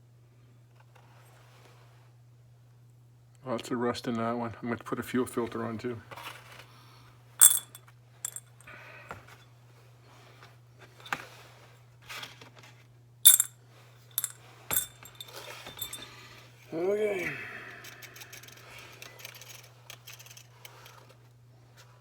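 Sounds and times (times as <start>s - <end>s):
metal tools clinking and tapping: 7.4s - 8.5s, 13.3s - 13.5s, 14.2s - 16.0s.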